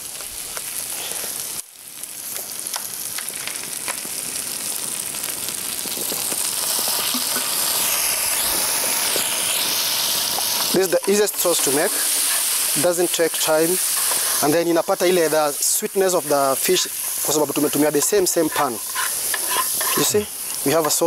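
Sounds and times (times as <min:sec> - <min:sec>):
butter and garlic sizzling in pan: 0:00.0 - 0:21.0.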